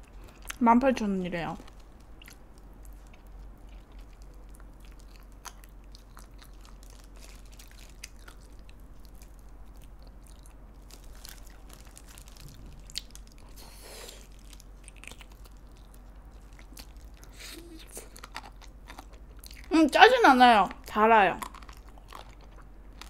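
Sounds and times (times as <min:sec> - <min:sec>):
chewing and biting chicken: 0:02.0 - 0:19.7, 0:21.4 - 0:23.0.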